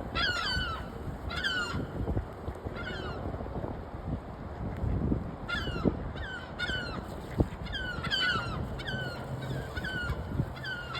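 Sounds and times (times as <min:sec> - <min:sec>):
birds calling: 0:05.5 - 0:10.9
low rumbling background: 0:05.7 - 0:10.9.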